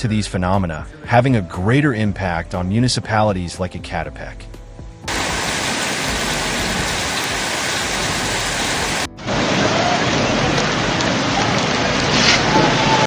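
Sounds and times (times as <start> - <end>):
heavy rain pouring: 5.1 - 13.0.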